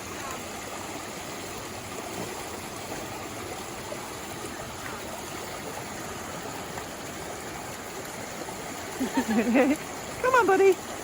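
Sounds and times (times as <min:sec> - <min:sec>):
rushing floodwater: 0:00.0 - 0:11.0.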